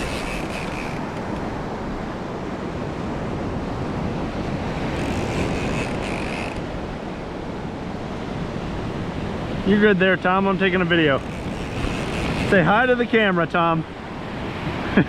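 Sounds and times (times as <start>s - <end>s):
ocean surf breaking: 0.0s - 15.0s
wind buffeting microphone: 10.6s - 13.2s.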